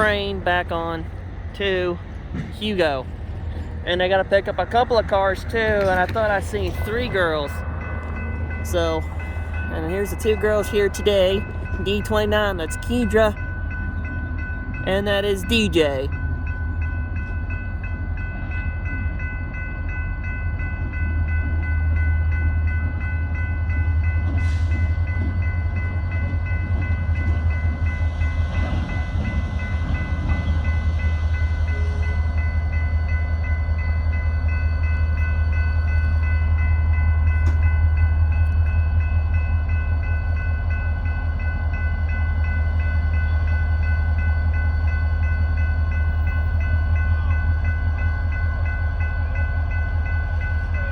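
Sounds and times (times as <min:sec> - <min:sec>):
locomotive diesel engine rumble: 0:00.0 - 0:16.9.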